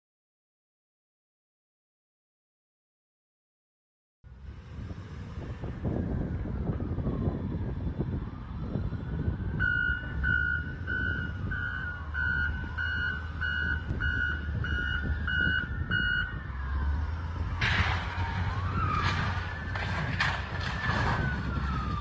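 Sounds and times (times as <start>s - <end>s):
road and engine rumble: 4.2s - 22.0s
siren wailing: 5.6s - 22.0s.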